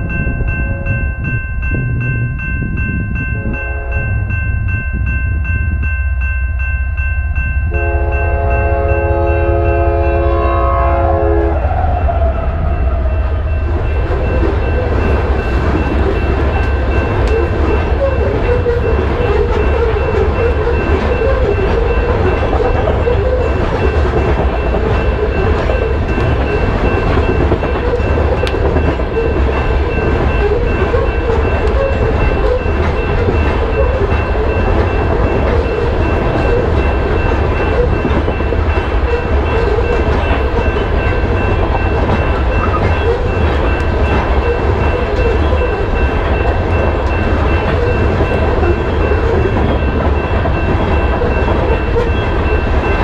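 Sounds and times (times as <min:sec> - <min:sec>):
crossing signal bell ringing: 0:00.0 - 0:53.0
train cars rumbling past: 0:00.0 - 0:53.0
locomotive horn chord: 0:03.5 - 0:04.3, 0:07.7 - 0:13.5.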